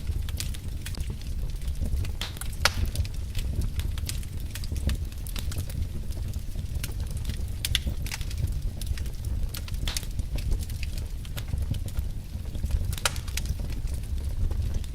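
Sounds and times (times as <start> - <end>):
steady low rumble: 0.0 - 14.9
wood fire crackling and popping: 0.0 - 14.9.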